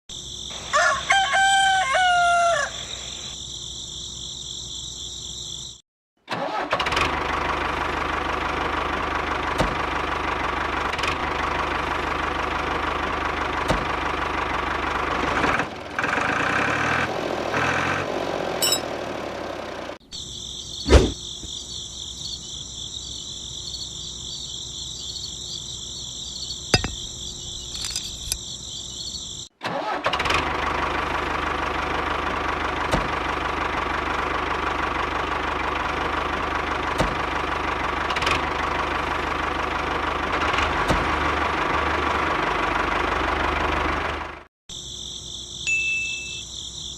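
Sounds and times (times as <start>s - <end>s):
rooster crowing: 0.6s - 3.3s
tractor engine running: 6.3s - 20.0s, 26.0s - 44.5s.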